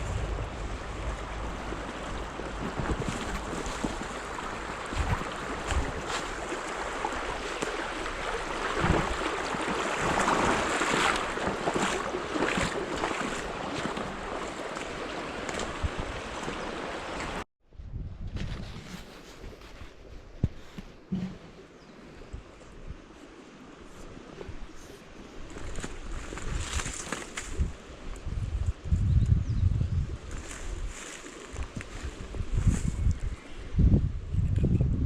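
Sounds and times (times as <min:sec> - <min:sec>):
stream water rushing: 0:00.0 - 0:17.4
wind rumbling on microphone: 0:00.0 - 0:35.0.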